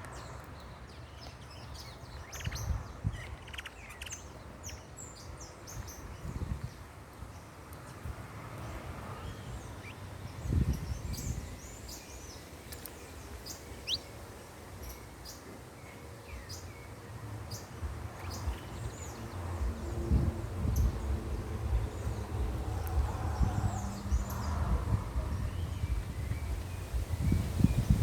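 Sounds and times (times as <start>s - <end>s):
small birds chirping: 0.0s - 28.0s
low rumbles: 17.8s - 28.0s.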